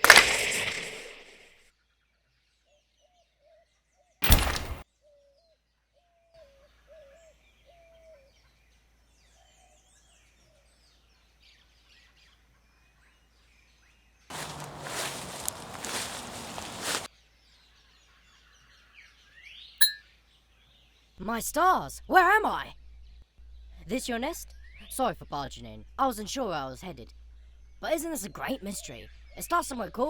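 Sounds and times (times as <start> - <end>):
soft bird chirps: 14.3 - 17.1.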